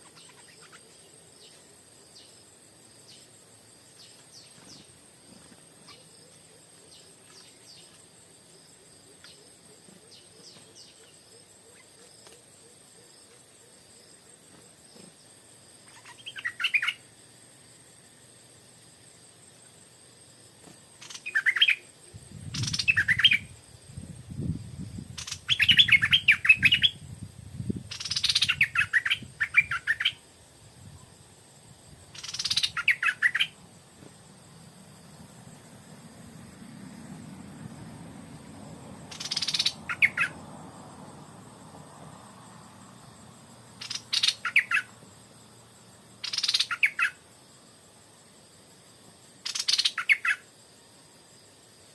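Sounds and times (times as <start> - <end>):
bird singing warbled phrases: 0.0 - 1.6, 15.8 - 17.0, 21.0 - 23.6, 25.0 - 27.0, 27.8 - 30.2, 32.1 - 33.6, 39.1 - 40.4, 43.8 - 45.0, 46.2 - 47.2, 49.4 - 50.4
faint bird chirps: 0.0 - 2.4, 4.0 - 8.0, 9.2 - 14.1, 15.8 - 17.1, 21.0 - 23.6, 25.0 - 27.0, 27.9 - 30.2, 32.1 - 33.6, 39.1 - 40.4, 43.8 - 45.0, 46.2 - 47.2, 49.4 - 50.5.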